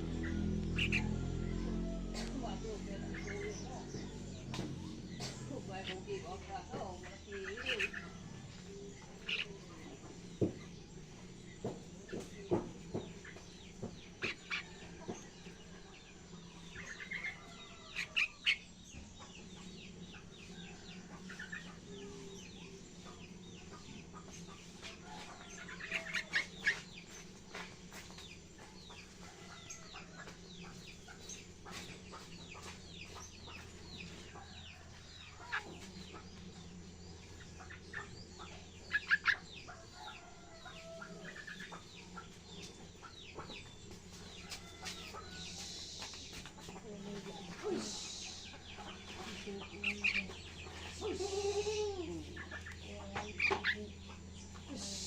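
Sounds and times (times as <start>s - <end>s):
low hum: 0.0s - 10.0s
bird chirping and singing: 0.0s - 55.0s.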